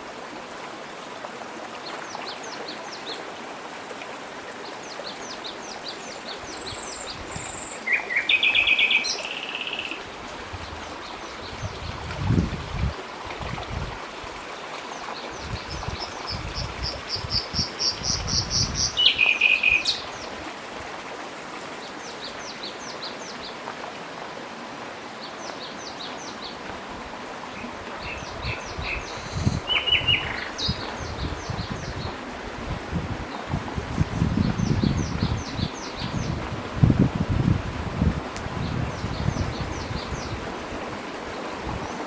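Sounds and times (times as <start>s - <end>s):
outdoor background hiss: 0.0s - 42.0s
songbirds singing: 4.6s - 12.4s, 15.2s - 20.4s, 27.5s - 32.2s, 33.3s - 36.5s, 38.6s - 40.5s.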